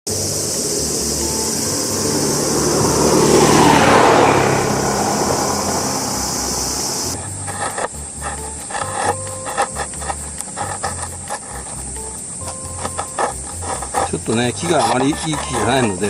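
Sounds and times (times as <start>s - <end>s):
steady hiss: 0.1s - 3.2s, 5.0s - 16.0s
road vehicle passing by: 0.1s - 16.0s
clicks and rubbing: 7.2s - 16.0s.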